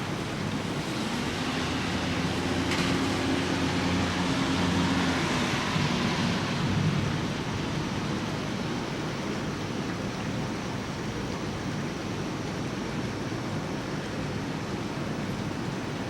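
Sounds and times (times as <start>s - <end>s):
rain falling: 0.0s - 16.0s
vehicle engine passing: 0.7s - 7.8s.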